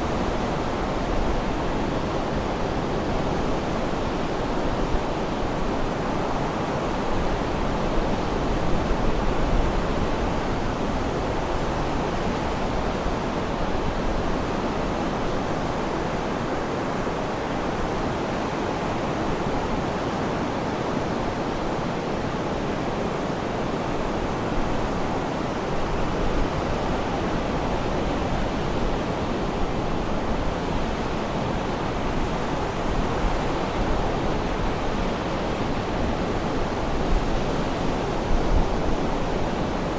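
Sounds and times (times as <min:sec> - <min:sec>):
sea surf washing: 0:09.6 - 0:39.9.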